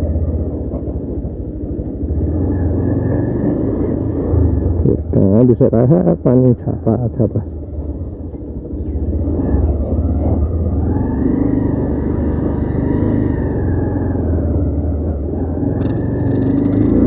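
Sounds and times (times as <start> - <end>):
wind and road rumble: 0.0 - 17.0
motorcycle engine running: 7.4 - 17.0.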